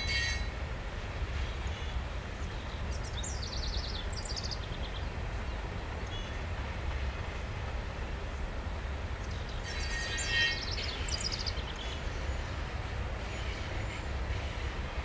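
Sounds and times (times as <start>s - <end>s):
freight train rolling past: 0.0s - 15.0s
songbird twittering: 2.4s - 5.1s, 9.2s - 12.6s.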